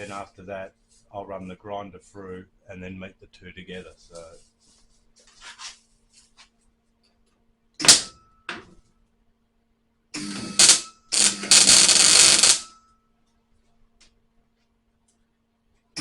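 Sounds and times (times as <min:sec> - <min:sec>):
faint steady hum: 0:00.0 - 0:16.0
welder bursts: 0:10.2 - 0:12.7.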